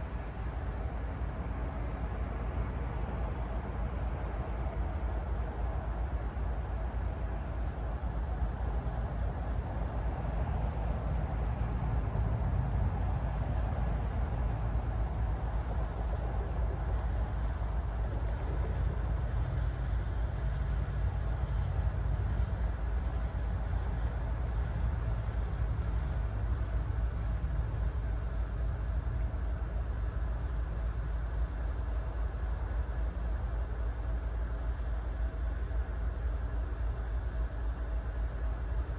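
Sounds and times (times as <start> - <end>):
heavy vehicle rumble: 0.0 - 38.9.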